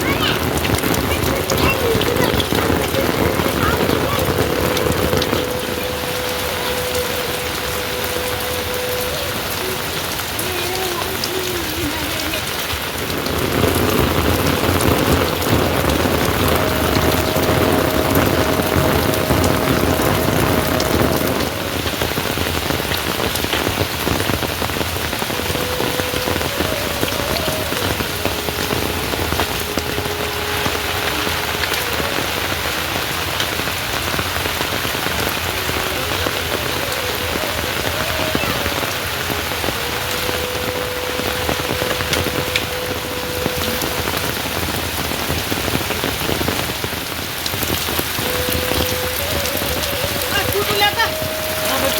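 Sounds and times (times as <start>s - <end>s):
heavy rain falling: 0.0s - 51.9s.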